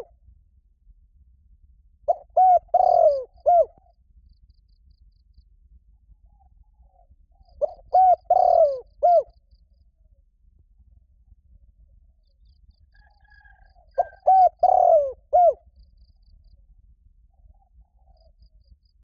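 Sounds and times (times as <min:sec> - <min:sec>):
dove cooing: 0:02.1 - 0:03.8, 0:07.6 - 0:09.4, 0:13.0 - 0:15.6.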